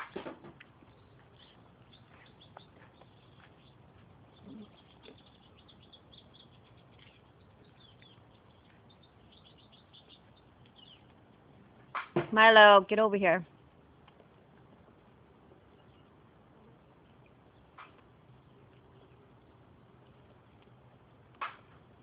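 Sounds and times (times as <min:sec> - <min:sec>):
faint birds chirping: 0:00.5 - 0:12.0, 0:13.0 - 0:22.0.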